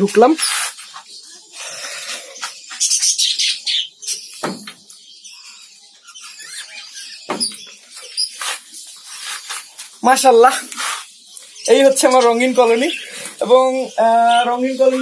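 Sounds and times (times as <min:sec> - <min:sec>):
small birds chirping: 0:00.0 - 0:15.0
dull knocks: 0:04.4 - 0:04.8, 0:07.3 - 0:07.6.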